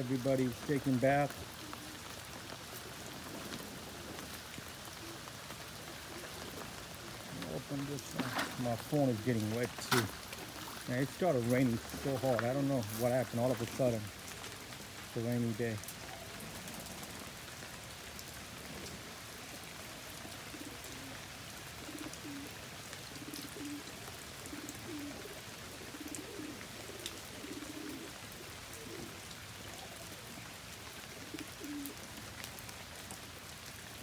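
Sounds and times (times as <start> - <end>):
heavy rain hissing: 0.0 - 22.5
pigeons cooing: 0.0 - 34.0.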